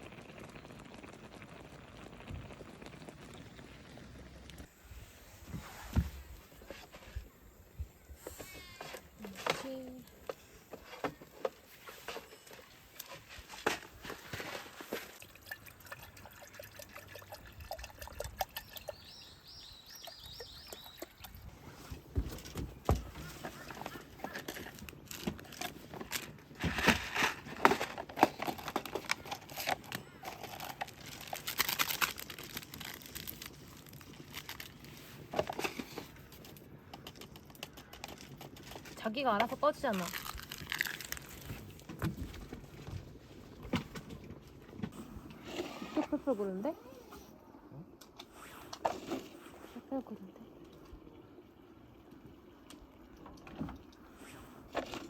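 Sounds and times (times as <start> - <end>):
bird chirping: 18.6 - 21.5
packaging rustling and crinkling: 22.2 - 39.1, 39.7 - 43.7.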